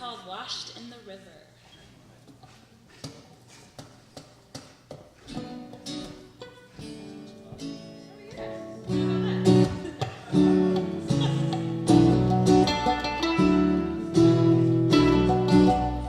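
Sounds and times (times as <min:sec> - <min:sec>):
acoustic guitar: 0:02.5 - 0:16.0.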